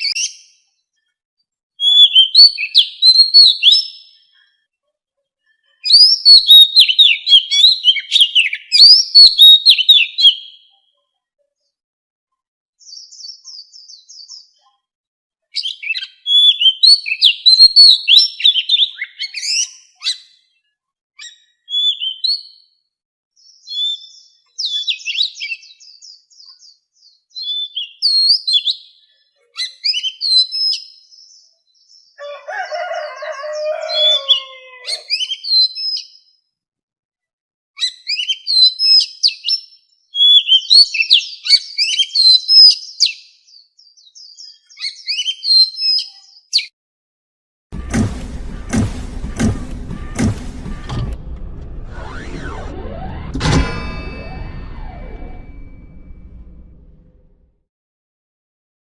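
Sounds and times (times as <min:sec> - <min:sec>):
bird singing whistled phrases: 0:21.2 - 0:22.4, 0:23.6 - 0:26.0.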